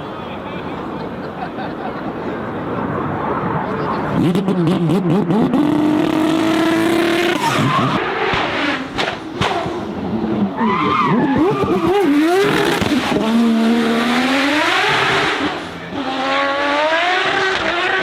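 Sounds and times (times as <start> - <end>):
tyres skidding: 0.0 - 18.0
car engine revving hard: 4.1 - 10.1, 10.9 - 18.0.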